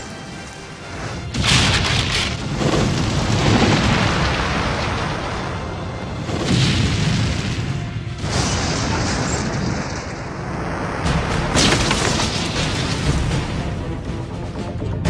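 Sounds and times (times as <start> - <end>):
music: 0.0 - 3.3, 4.6 - 9.7, 11.0 - 15.0
low rumbling explosion: 1.3 - 13.3.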